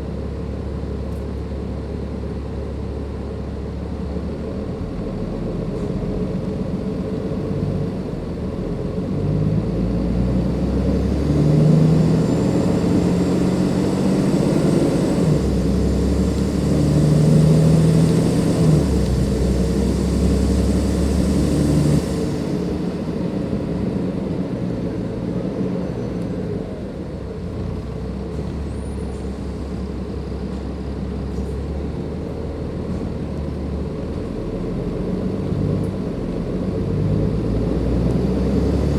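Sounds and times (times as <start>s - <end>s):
bus diesel engine pulling hard: 0.0s - 38.9s.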